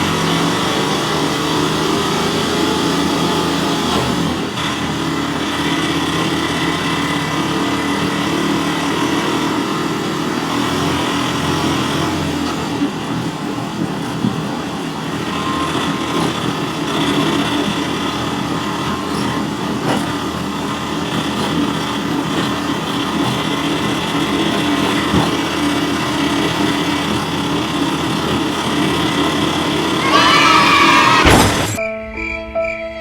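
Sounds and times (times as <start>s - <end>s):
small electric motor whine: 14.6s - 31.8s.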